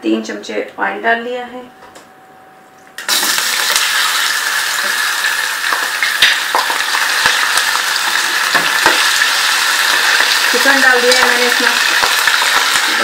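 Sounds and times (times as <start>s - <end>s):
chicken frying in hot oil: 3.0s - 13.0s.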